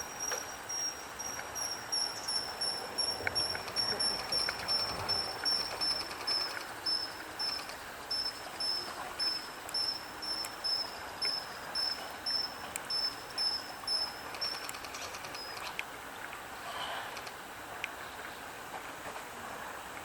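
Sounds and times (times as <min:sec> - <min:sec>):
short high buzzy chirps: 0:00.0 - 0:14.8.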